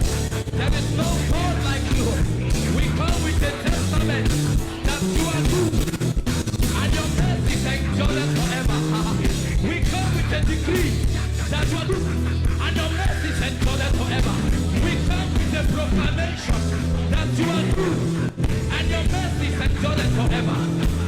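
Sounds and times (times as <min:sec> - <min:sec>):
band playing steady beat: 0:00.0 - 0:21.0
voices singing: 0:00.0 - 0:21.0.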